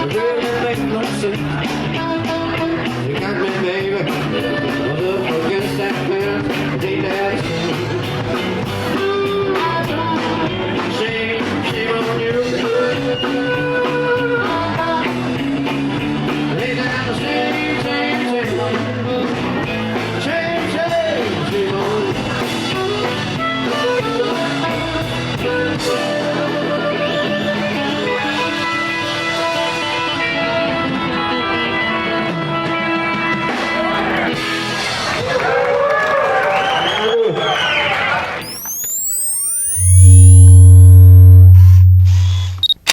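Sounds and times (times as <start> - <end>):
drums with steady beat: 0.0 - 26.8
bass: 0.0 - 37.0, 37.9 - 42.9
electric guitar lead: 38.4 - 42.9.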